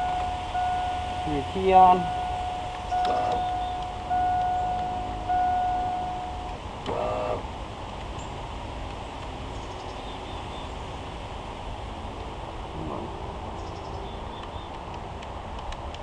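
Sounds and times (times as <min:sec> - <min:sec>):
car warning chime: 0:00.0 - 0:07.4
steady low background noise: 0:00.0 - 0:16.0.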